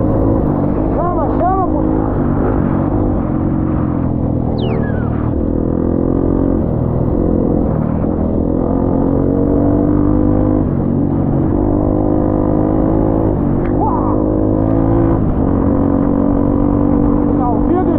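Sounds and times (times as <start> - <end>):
off-road vehicle engine: 0.0 - 17.9
short falling squeal: 4.6 - 5.3.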